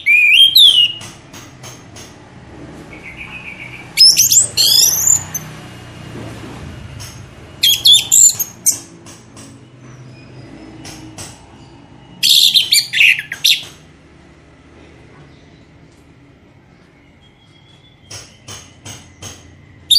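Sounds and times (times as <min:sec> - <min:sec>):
songbird chirps and trills: 0:07.6 - 0:13.8, 0:15.1 - 0:19.9.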